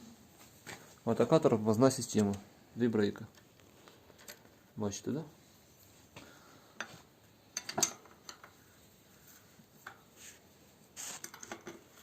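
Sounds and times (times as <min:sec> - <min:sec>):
brief metal scrape: 0:11.0 - 0:11.6.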